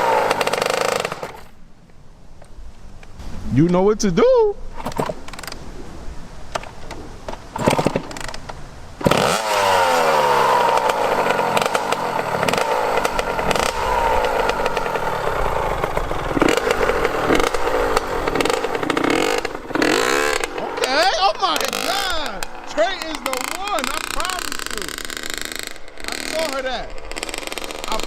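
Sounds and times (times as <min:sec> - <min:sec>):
dirt bike engine revving: 0:00.0 - 0:01.6, 0:07.5 - 0:08.4, 0:09.0 - 0:28.0.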